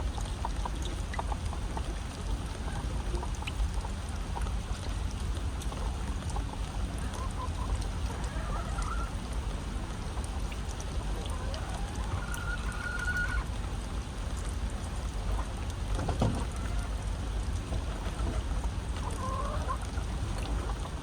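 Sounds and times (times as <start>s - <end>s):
steady rain: 0.0s - 21.0s
hens calling: 7.0s - 9.2s, 11.1s - 13.5s, 19.0s - 20.8s.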